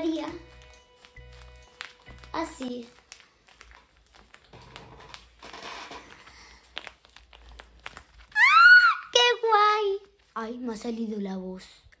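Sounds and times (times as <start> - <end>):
paper crinkling and rustling: 0.0 - 11.1
high squeal of delight: 8.3 - 9.2.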